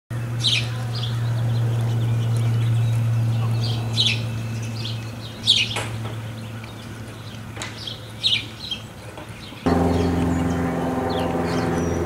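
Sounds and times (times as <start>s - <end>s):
birds chirping: 0.1s - 12.0s
steady low hum: 9.6s - 12.0s.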